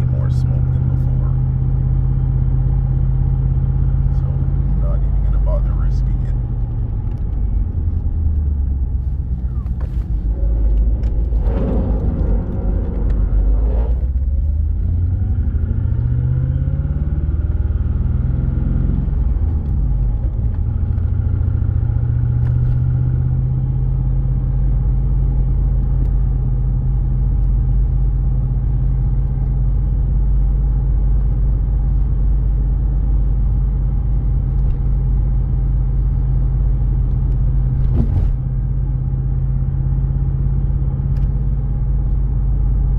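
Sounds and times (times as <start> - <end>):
car engine revving: 0.0 - 30.3.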